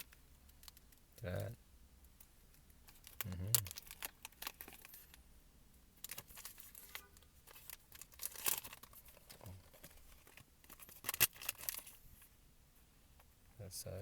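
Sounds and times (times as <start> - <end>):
plastic wrapper crinkling: 2.5 - 5.2, 6.0 - 12.0.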